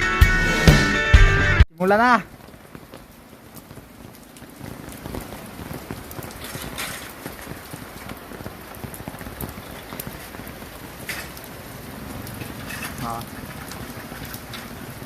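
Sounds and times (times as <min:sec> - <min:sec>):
rain on hard surfaces: 0:01.7 - 0:15.0.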